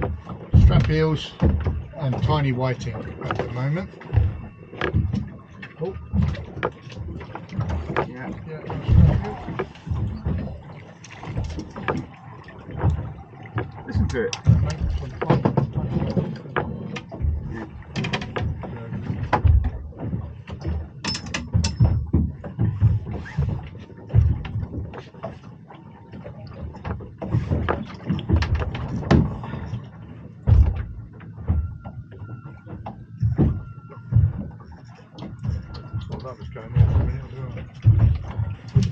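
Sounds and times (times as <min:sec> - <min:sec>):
heavy thuds: 0:00.0 - 0:05.5, 0:08.8 - 0:10.7, 0:30.4 - 0:34.7, 0:35.3 - 0:38.9.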